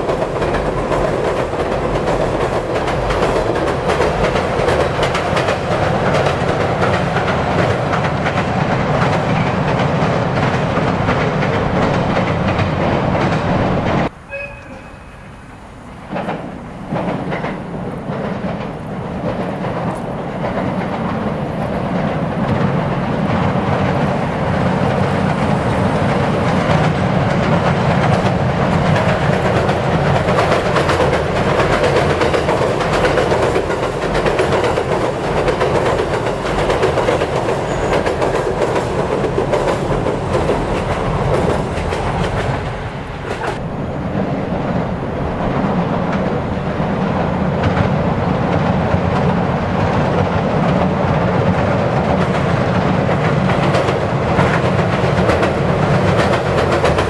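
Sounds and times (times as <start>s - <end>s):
wheel clatter over rail joints: 0.0s - 14.8s, 15.9s - 57.0s
train rumbling over bridge: 0.0s - 57.0s.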